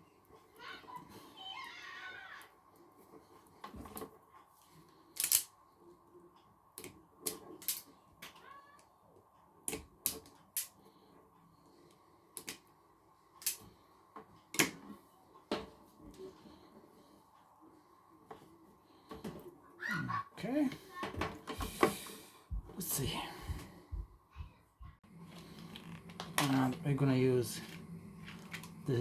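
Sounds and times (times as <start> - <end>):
hand tools clicking on cables: 5.2 - 5.5, 13.4 - 13.6.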